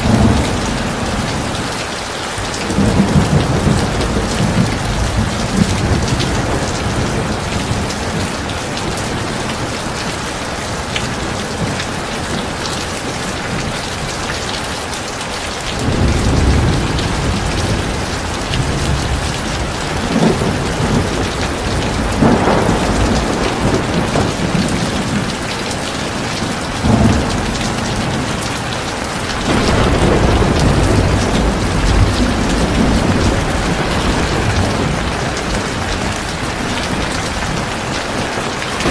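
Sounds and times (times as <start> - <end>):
thunder rumbling: 0.0 - 1.8, 2.4 - 14.6, 15.7 - 38.9
heavy rain falling: 0.0 - 38.9.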